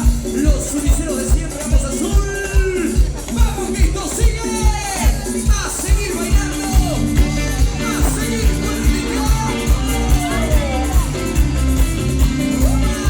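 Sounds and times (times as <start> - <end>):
band playing steady beat: 0.0 - 13.0
person singing: 5.0 - 13.0.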